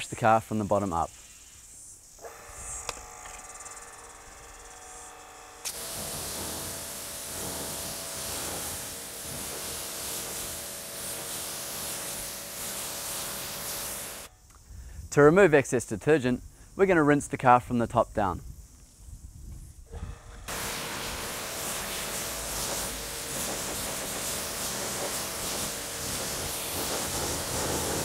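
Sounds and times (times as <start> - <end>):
pressure washer motor hum: 2.2 - 14.3, 20.0 - 28.0
high-pressure water jet hissing: 4.9 - 14.3, 20.5 - 28.0.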